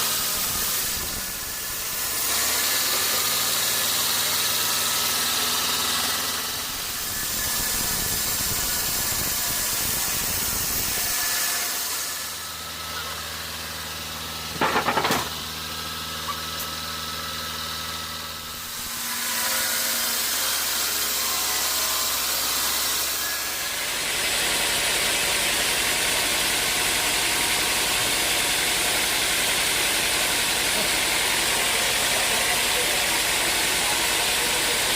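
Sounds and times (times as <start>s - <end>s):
saw cutting into log: 0.0s - 34.9s
sawmill engine running: 0.0s - 34.9s
sharp knocks: 14.5s - 15.4s.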